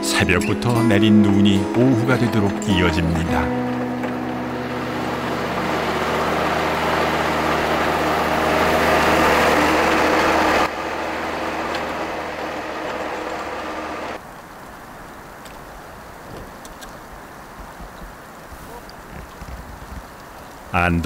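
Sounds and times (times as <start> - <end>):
engine running steadily: 1.6 - 14.2
rushing noise: 3.3 - 14.2.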